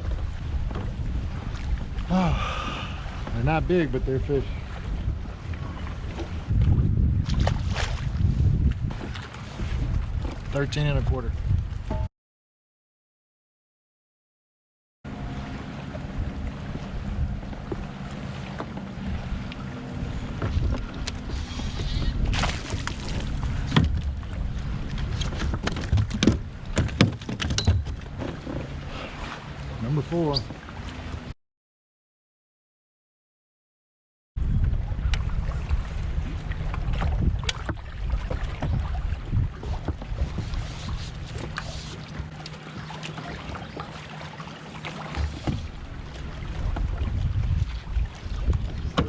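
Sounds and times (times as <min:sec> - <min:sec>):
water lapping against kayak hull: 0:00.0 - 0:12.1, 0:15.1 - 0:31.3, 0:34.4 - 0:49.0
wind rumble on microphone: 0:00.0 - 0:12.1, 0:15.1 - 0:31.3, 0:34.4 - 0:42.4, 0:45.1 - 0:49.0
gear clicking and knocking on kayak: 0:24.9 - 0:28.7, 0:48.4 - 0:49.0.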